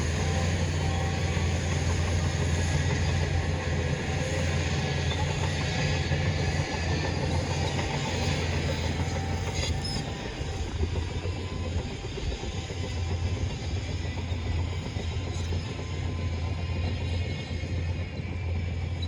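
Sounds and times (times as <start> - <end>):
bulldozer diesel engine running: 0.0 - 19.0.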